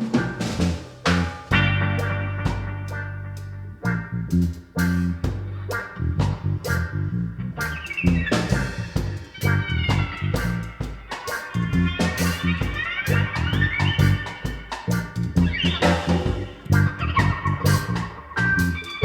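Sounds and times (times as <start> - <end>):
drum kit hits: 0.0 - 3.1
bass guitar line: 0.0 - 19.0
sliding lead guitar: 0.0 - 19.0.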